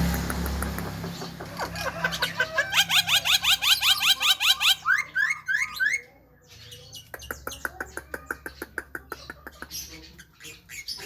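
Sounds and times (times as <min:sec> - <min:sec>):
bird sharp clicks: 0:00.0 - 0:01.5.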